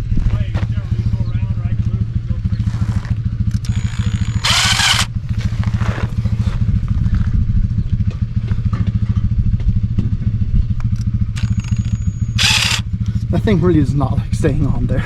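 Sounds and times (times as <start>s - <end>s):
engine chugging: 0.7s - 15.0s.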